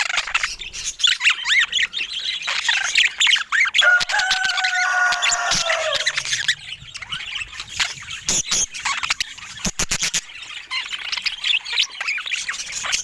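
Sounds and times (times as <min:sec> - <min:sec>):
budgerigars chattering: 0:00.0 - 0:13.0
long steady bird call: 0:03.5 - 0:09.4.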